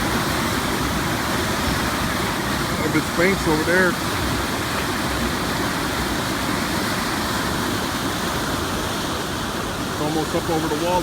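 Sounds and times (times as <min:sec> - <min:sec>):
floodwater rushing through creek: 0:00.0 - 0:11.0.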